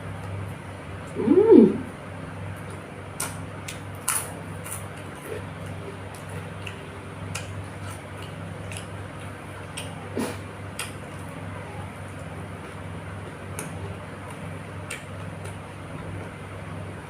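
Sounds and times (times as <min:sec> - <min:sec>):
steady low hum: 0:00.0 - 0:17.0
person chewing food: 0:02.6 - 0:11.4.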